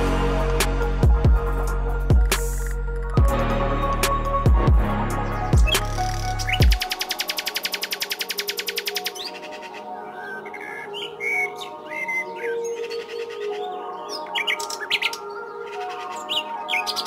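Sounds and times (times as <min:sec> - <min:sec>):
background music of held notes: 0:00.0 - 0:17.0
small birds chirping: 0:05.3 - 0:17.0.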